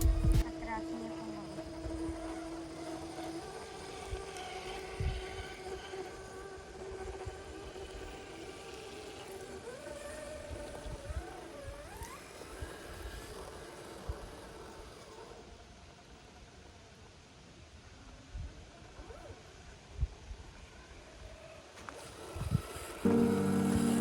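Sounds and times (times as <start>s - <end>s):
thumps from rough track: 0.0s - 0.4s
off-road vehicle engine revving: 0.0s - 0.8s.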